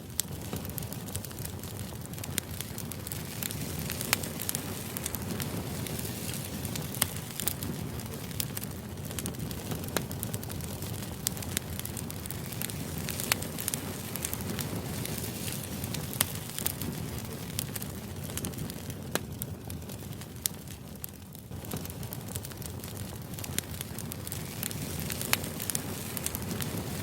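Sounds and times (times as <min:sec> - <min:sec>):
crackling fire: 0:00.0 - 0:27.0.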